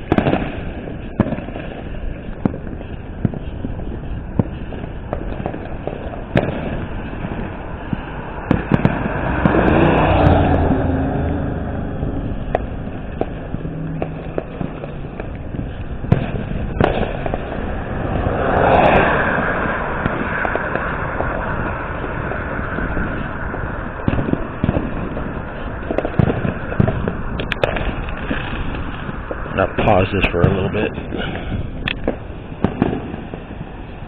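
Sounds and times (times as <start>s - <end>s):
fireworks popping and banging: 0.0s - 34.0s
steady rushing background: 1.8s - 34.0s.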